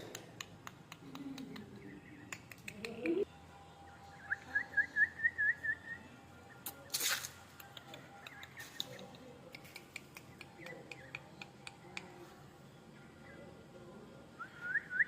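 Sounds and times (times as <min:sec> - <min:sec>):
bird clicks and chirps: 0:00.1 - 0:03.2, 0:06.6 - 0:12.3.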